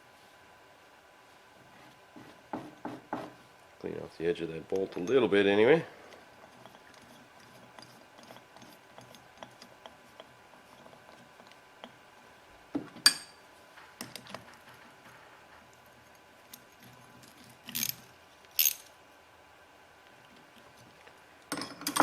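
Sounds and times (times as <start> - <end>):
metal parts and tools clinking: 16.5 - 18.9, 21.5 - 22.0.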